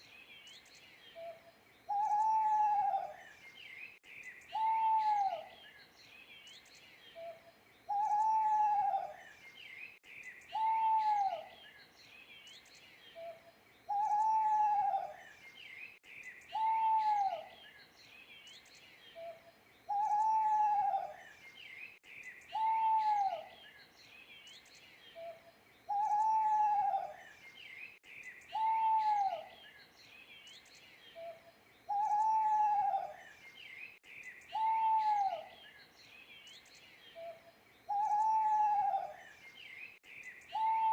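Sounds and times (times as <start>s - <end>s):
small birds chirping: 0.0s - 40.9s
owl hooting: 1.9s - 3.2s, 4.5s - 5.5s, 7.9s - 9.2s, 10.5s - 11.5s, 13.2s - 15.2s, 16.5s - 17.5s, 19.2s - 21.2s, 22.5s - 23.5s, 25.2s - 27.2s, 28.5s - 29.5s, 31.2s - 33.2s, 34.5s - 35.6s, 37.2s - 39.2s, 40.5s - 40.9s.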